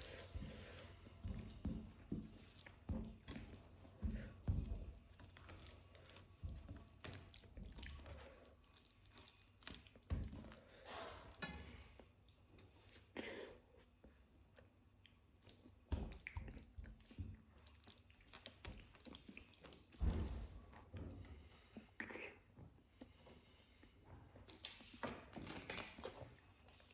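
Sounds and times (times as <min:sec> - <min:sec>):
person chewing: 0:02.4 - 0:13.8, 0:15.0 - 0:20.0.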